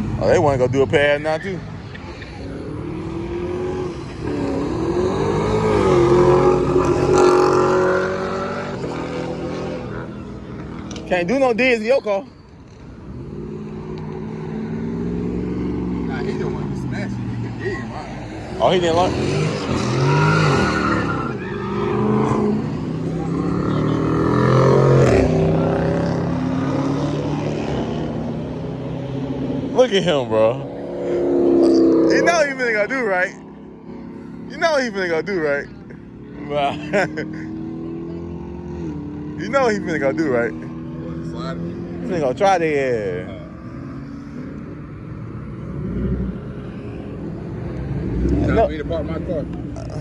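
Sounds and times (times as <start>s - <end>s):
car engine revving: 0.0s - 50.0s
car engine revving hard: 2.5s - 10.1s, 18.5s - 33.5s.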